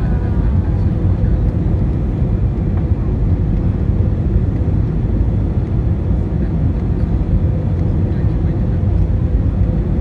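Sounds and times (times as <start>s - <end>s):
airliner cabin rumble: 0.0s - 10.0s.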